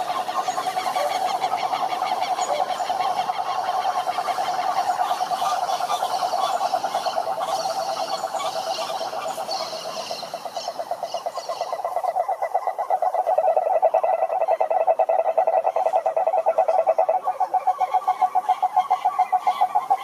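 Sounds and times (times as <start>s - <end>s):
frogs croaking: 0.0s - 20.0s
high chirping calls: 0.0s - 20.0s.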